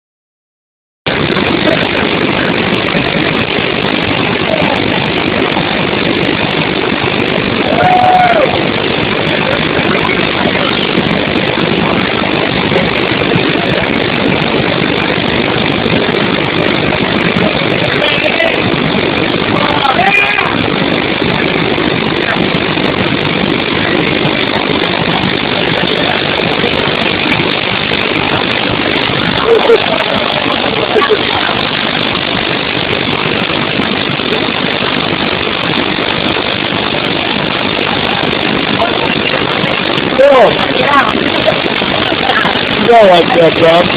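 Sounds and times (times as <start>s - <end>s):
water pouring over dam: 1.1s - 43.9s.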